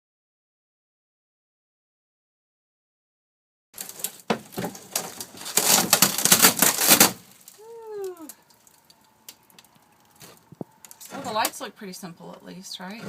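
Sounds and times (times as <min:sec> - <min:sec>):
wood paneling cracking and splintering: 0:03.8 - 0:11.7.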